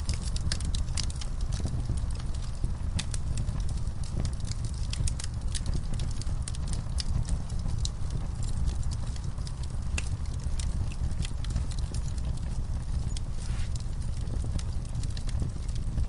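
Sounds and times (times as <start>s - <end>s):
burning logs crackling: 0.0s - 16.0s
fire pops and snaps: 0.0s - 16.0s
low fire rumble: 0.0s - 16.0s.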